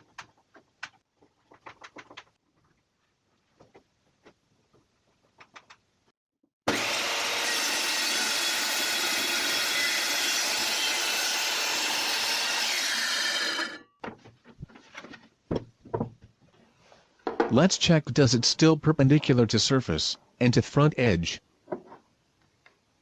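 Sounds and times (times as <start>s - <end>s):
circular saw cutting board: 6.7s - 13.9s.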